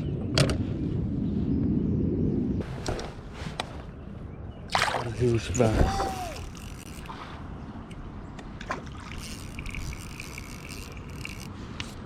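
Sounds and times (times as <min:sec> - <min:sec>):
wind rumbling on microphone: 0:00.0 - 0:12.0
light water sounds: 0:04.7 - 0:12.0
thin high whir: 0:05.8 - 0:07.2, 0:09.1 - 0:12.0
small clicks: 0:09.2 - 0:12.0.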